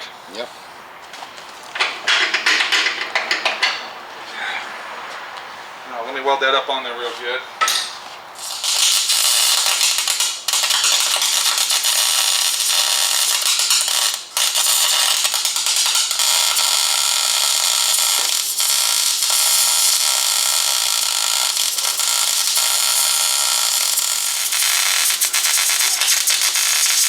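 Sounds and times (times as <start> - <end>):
welder arc crackling: 7.6 - 27.0.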